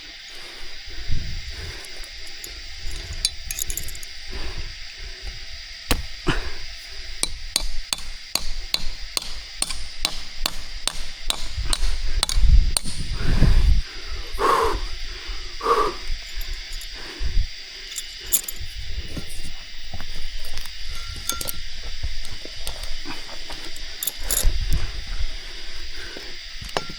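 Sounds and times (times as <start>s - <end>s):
steady high-pitched tone: 0.0s - 26.9s
quick chopping strikes: 5.9s - 6.2s.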